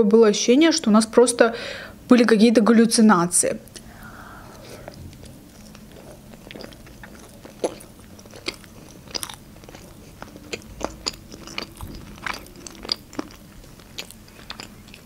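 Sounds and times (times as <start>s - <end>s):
close chewing: 4.5s - 15.0s.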